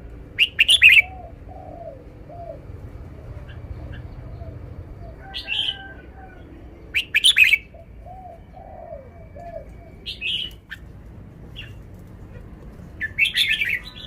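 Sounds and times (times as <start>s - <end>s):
low cooing notes: 0.0s - 11.6s
bird singing bright phrases: 0.4s - 1.1s, 6.7s - 10.9s, 13.0s - 14.0s.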